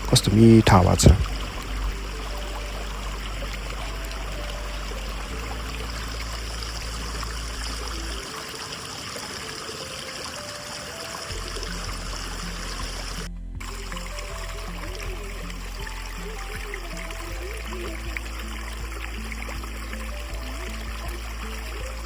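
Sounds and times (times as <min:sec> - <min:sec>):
stream babbling: 0:00.0 - 0:22.0.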